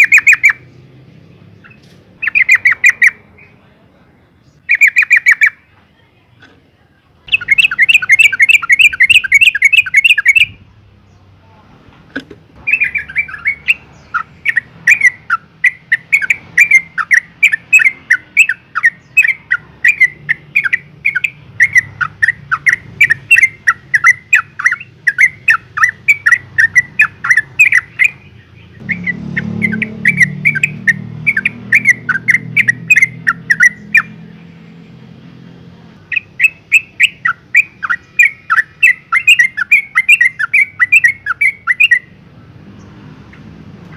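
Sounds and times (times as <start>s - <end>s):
bird chattering calls: 0.0s - 3.6s, 4.5s - 5.7s, 7.3s - 10.6s, 12.2s - 34.5s, 36.0s - 42.2s.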